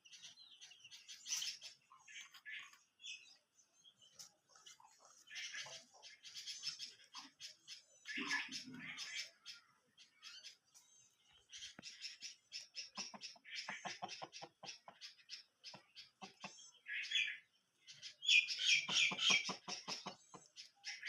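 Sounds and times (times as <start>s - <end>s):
chicks peeping: 11.6s - 16.7s, 18.0s - 20.7s.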